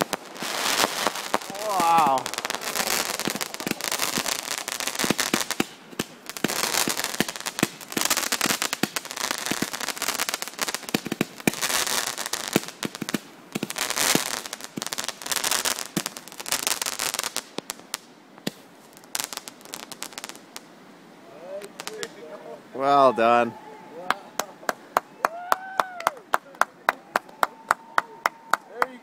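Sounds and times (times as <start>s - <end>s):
fireworks crackling and popping: 0.0s - 29.0s.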